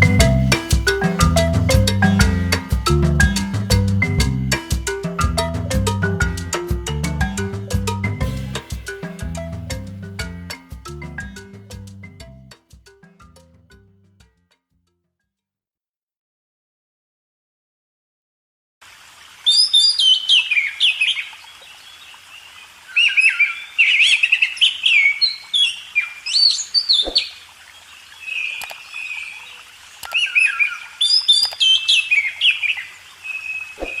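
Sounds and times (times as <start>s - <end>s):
bird singing whistled phrases: 23.0s - 27.3s.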